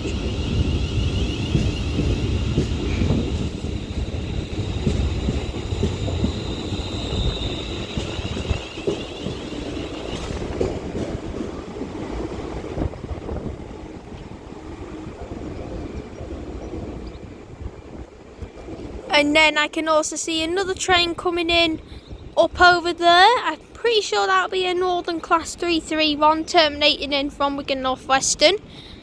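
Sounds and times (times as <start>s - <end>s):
wheels clicking on rails: 0.0s - 19.0s
train rumbling: 0.0s - 29.0s.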